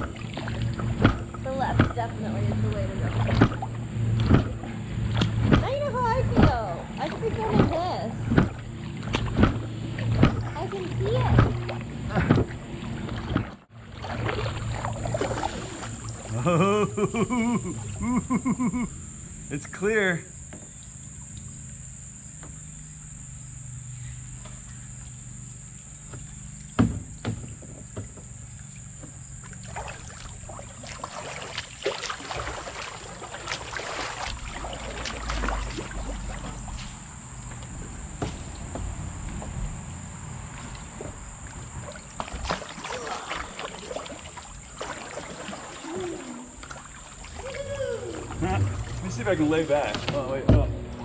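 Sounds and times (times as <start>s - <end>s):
paddle knocking on hull: 0.0s - 16.4s, 26.1s - 39.6s, 40.6s - 51.0s
paddle splashing in water: 0.0s - 18.8s, 26.0s - 51.0s
crickets trilling: 0.0s - 51.0s.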